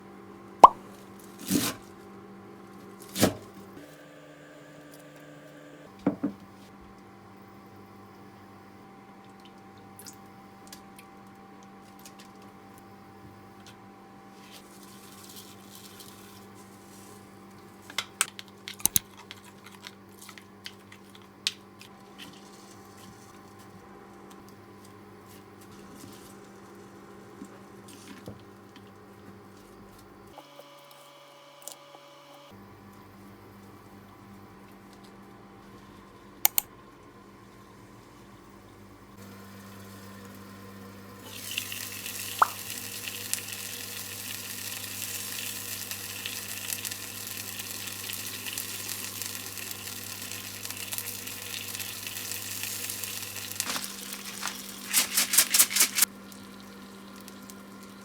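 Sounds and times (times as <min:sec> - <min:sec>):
steady electrical hum: 0:37.9 - 0:58.0
containers clicking and knocking: 0:53.6 - 0:56.1.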